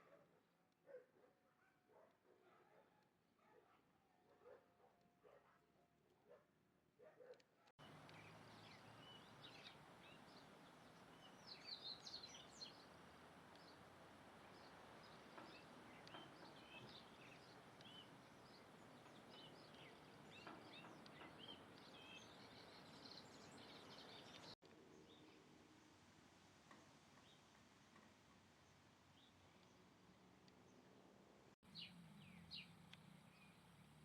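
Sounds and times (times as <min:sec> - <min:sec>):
small birds chirping: 0:07.8 - 0:25.5, 0:31.6 - 0:34.0.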